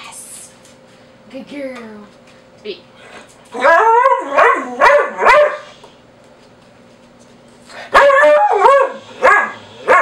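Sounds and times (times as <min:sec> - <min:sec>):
dog barking: 0:03.6 - 0:05.8, 0:07.9 - 0:10.0.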